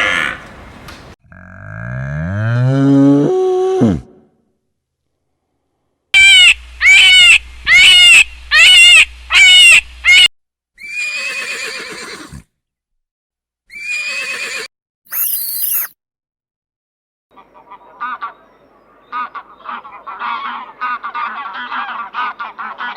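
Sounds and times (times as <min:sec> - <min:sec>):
animal rough longer calls: 0:01.2 - 0:04.1
animal short high-pitched calls: 0:15.1 - 0:15.9.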